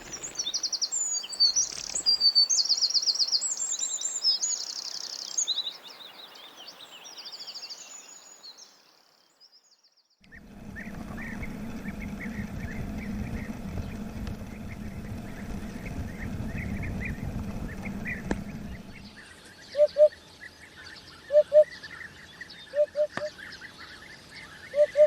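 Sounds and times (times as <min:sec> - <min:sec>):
songbirds singing and chirping: 0:00.0 - 0:25.0
steady low hum: 0:10.2 - 0:19.3.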